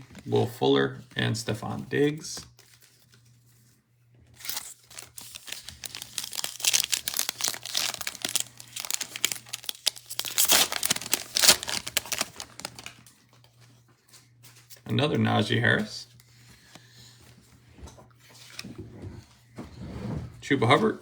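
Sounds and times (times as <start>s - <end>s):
foil wrappers tearing and crinkling: 4.4s - 13.2s.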